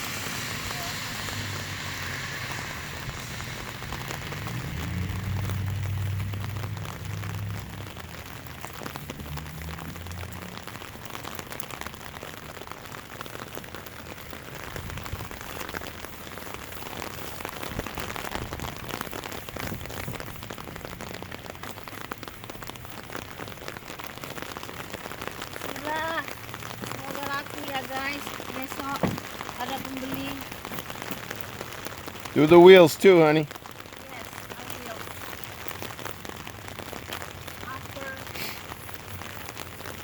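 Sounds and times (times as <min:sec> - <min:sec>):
low rumble: 0:00.0 - 0:10.6
rain pattering on surfaces: 0:00.0 - 0:40.0.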